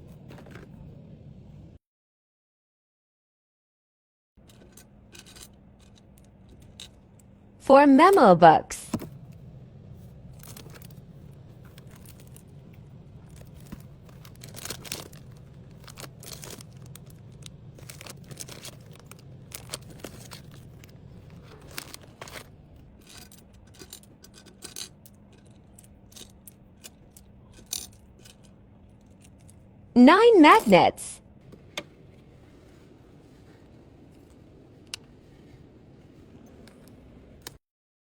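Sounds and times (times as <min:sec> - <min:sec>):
steady low hum: 0:04.4 - 0:37.6
plastic rustling: 0:10.1 - 0:29.6.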